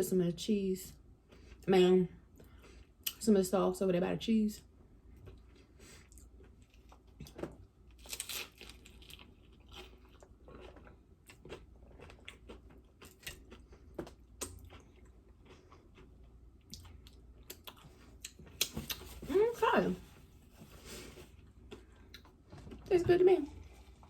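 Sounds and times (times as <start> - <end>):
crunching and chewing tostada: 5.0 - 19.4, 20.2 - 22.8, 23.5 - 24.0.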